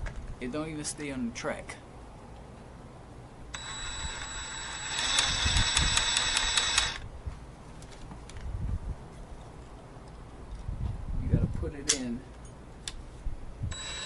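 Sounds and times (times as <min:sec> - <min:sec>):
jigsaw whining: 0:03.6 - 0:07.0, 0:13.7 - 0:14.0.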